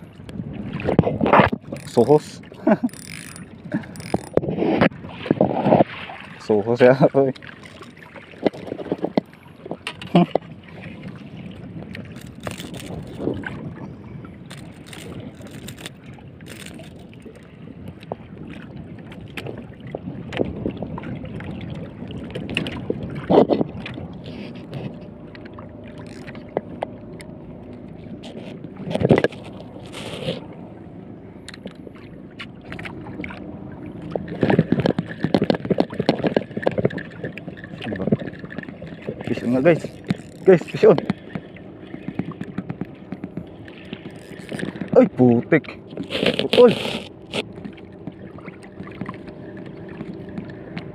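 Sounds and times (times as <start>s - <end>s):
water lapping against boat hull: 0.0s - 50.9s
wind: 0.0s - 50.9s
knocks against boat: 34.1s - 49.3s.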